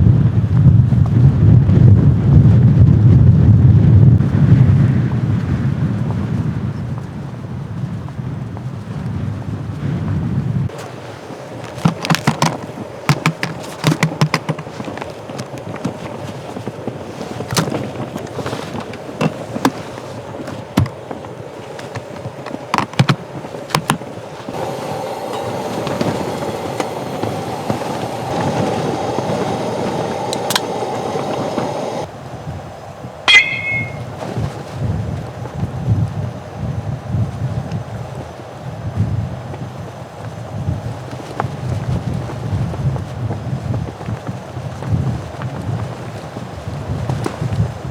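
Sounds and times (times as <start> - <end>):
rush of wind: 0.0 - 13.8, 24.3 - 47.9
tent fabric snapping in wind: 10.6 - 32.1.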